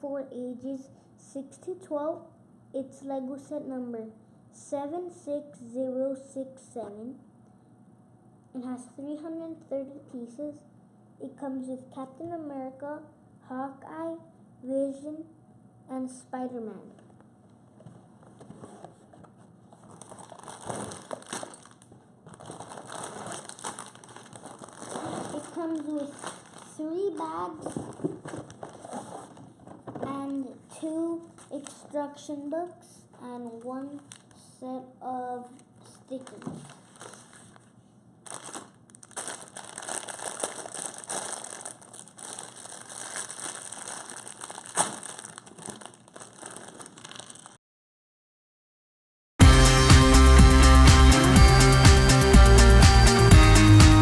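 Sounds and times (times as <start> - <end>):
plastic bags crinkling: 18.3 - 30.1, 33.9 - 34.4, 36.2 - 47.6
small plastic pieces rattling: 38.3 - 47.6.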